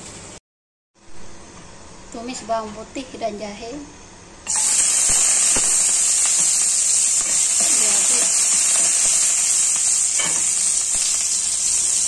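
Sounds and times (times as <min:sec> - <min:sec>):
garlic sizzling in hot oil: 0:04.5 - 0:12.0.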